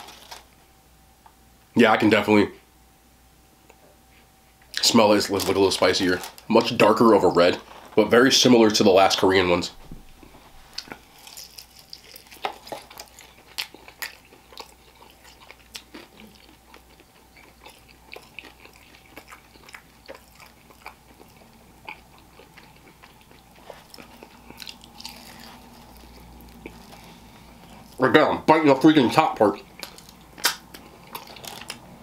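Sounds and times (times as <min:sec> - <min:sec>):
crunchy chewing: 0:10.1 - 0:28.1, 0:28.7 - 0:32.0.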